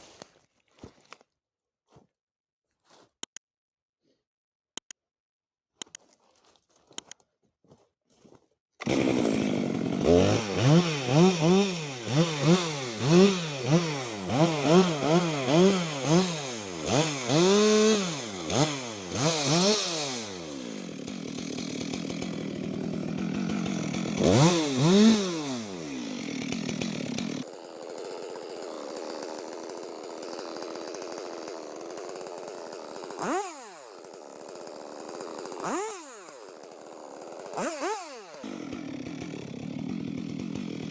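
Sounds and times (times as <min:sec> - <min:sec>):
chainsaw revving: 0:08.8 - 0:40.9.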